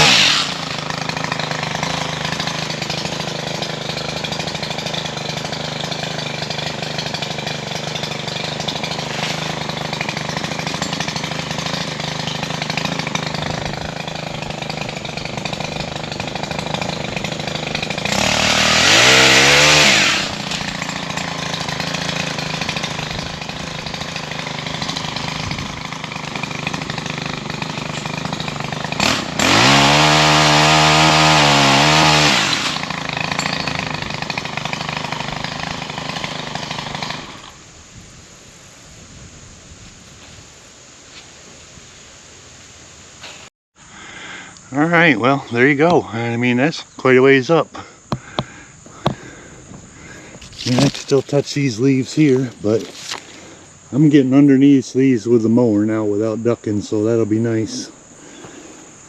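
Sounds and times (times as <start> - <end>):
chain cutting limbs: 0.0 - 37.6, 50.1 - 53.4
pole pruner engine idling and revving: 0.0 - 37.6, 44.5 - 54.6.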